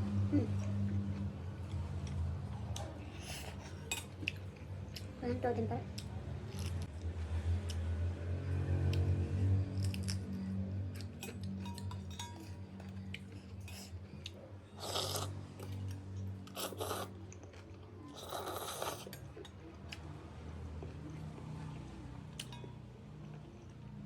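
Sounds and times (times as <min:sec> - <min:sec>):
chewing: 0:08.9 - 0:23.8
slurping noodles: 0:14.8 - 0:15.7, 0:16.5 - 0:17.2, 0:18.1 - 0:19.2.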